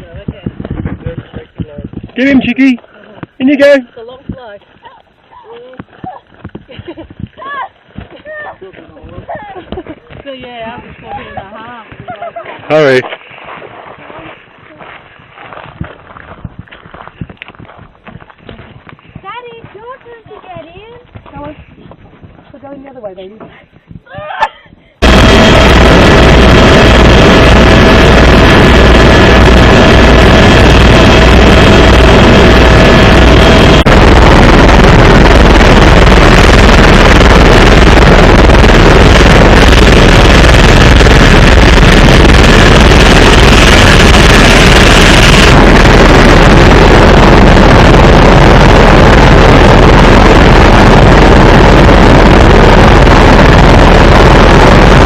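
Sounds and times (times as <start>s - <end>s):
helicopter engine and rotor: 25.0s - 47.6s
high whine: 25.0s - 55.0s.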